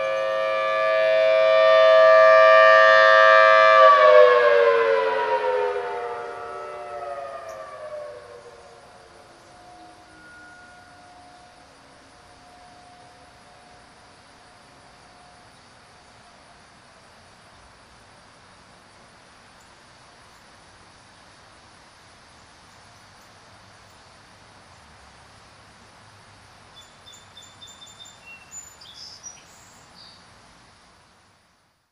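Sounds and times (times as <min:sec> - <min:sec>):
faint distant siren: 0:00.0 - 0:16.9
outdoor background hiss: 0:00.0 - 0:31.9
bird chirping: 0:26.7 - 0:30.2.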